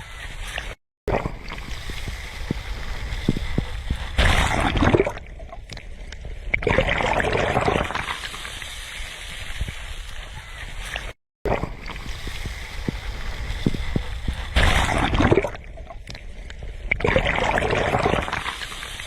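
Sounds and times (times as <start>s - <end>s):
sea waves washing onto shore: 1.3s - 5.2s, 7.2s - 16.4s, 17.2s - 19.0s.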